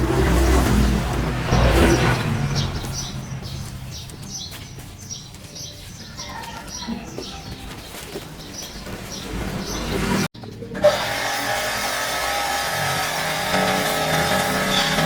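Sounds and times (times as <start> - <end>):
low rumble: 0.0 - 4.1
small birds chirping: 1.5 - 10.7.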